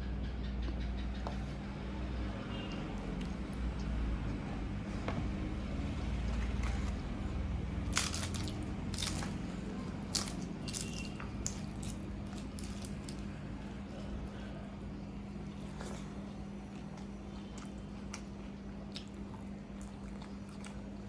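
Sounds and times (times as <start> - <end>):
wet chewing: 5.9 - 21.0
crisp bites: 7.8 - 13.3.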